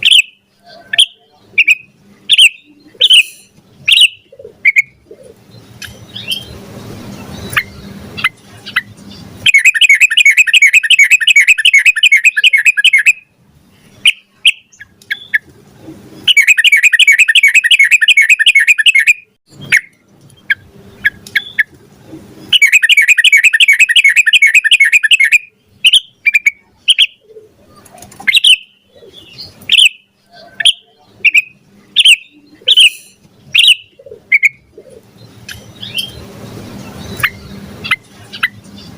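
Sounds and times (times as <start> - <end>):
bulbul singing fast notes: 7.2 - 13.2, 16.2 - 19.9, 22.5 - 27.2
bird single calls: 7.4 - 13.2, 16.2 - 21.7, 22.5 - 36.2.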